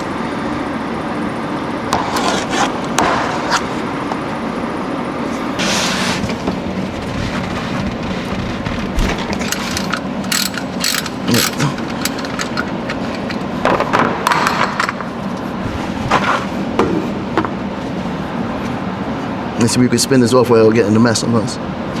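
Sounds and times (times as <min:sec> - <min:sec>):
shop fan running: 0:00.0 - 0:22.0
tool scraping: 0:01.9 - 0:04.4, 0:05.2 - 0:17.2
metallic tool clicks and knocks: 0:09.5 - 0:13.5.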